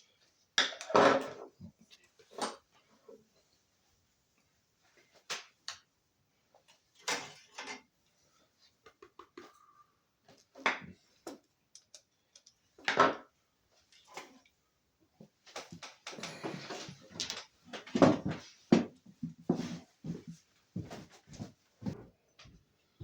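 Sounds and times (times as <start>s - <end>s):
small parts clicking and knocking: 11.2s - 12.8s.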